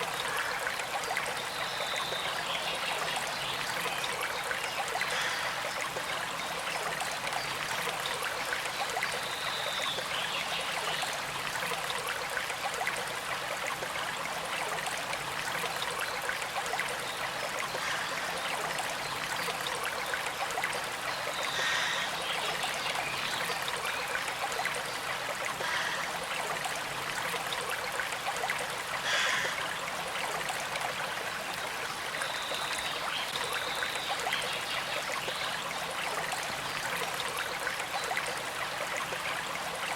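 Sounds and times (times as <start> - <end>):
small creek flowing: 0.0 - 39.9.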